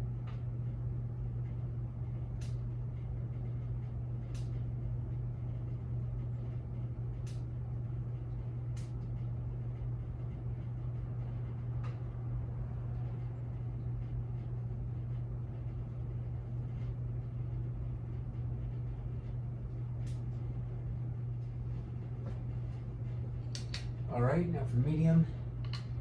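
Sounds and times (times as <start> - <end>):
ceiling fan motor hum: 0.0 - 26.0
sharp clicks: 23.5 - 23.9.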